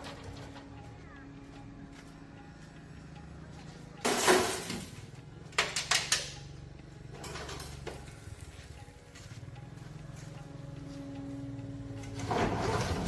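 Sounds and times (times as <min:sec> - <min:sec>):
metal clanking and knocking: 0:00.0 - 0:00.9, 0:04.0 - 0:06.5, 0:07.1 - 0:08.2, 0:12.0 - 0:13.0.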